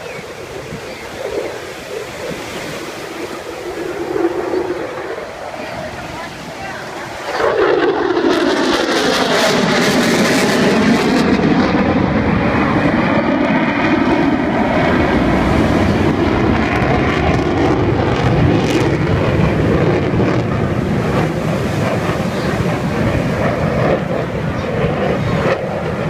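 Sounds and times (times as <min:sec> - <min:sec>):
jet engine noise: 0:00.0 - 0:26.0.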